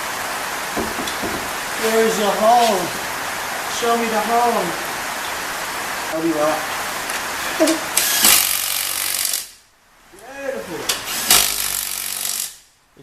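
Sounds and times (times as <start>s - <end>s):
impact wrench hammering: 8.0s - 9.6s, 10.9s - 12.6s.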